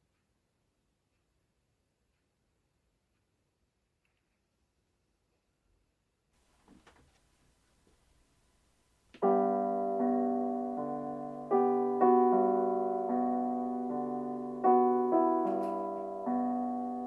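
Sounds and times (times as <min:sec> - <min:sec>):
slow piano music: 0:09.2 - 0:17.0.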